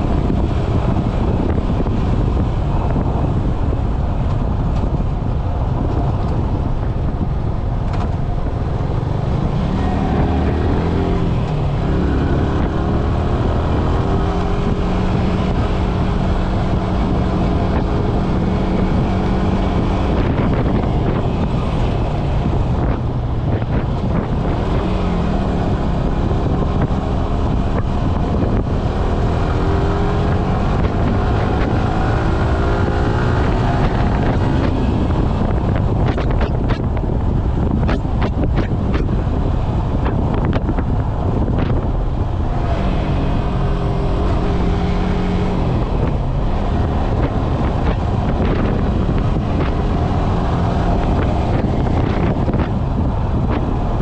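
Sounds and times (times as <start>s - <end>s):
wind rumble on microphone: 0.0s - 54.0s
motorcycle engine revving: 8.8s - 37.0s, 39.9s - 54.0s.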